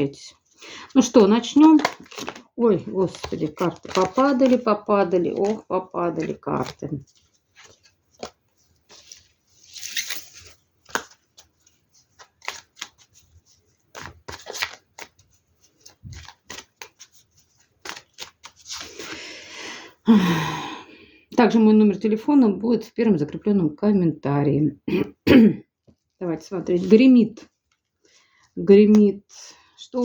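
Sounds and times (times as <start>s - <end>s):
cards shuffling: 0.9s - 19.2s
cards tapping and clicking: 1.5s - 2.5s, 3.1s - 5.6s, 7.6s - 8.4s, 10.8s - 11.5s, 13.9s - 17.1s.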